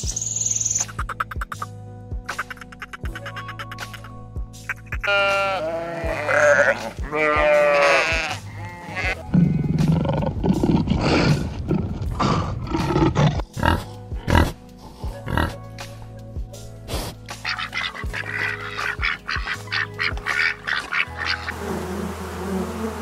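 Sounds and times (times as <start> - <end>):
background music with beat: 0.0 - 11.5, 12.8 - 21.5
wavering high animal calls: 5.0 - 9.1, 17.4 - 21.6
pig grunts: 8.9 - 14.6, 15.2 - 15.6, 16.9 - 21.4
lion growling: 9.3 - 15.6.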